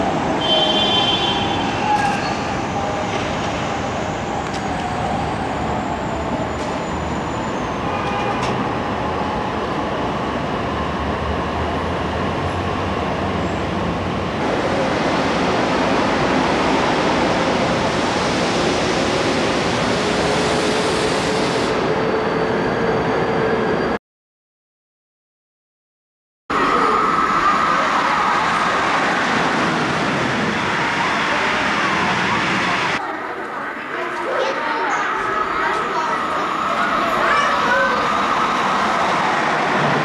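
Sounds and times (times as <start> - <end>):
train rumbling: 26.6 - 40.0.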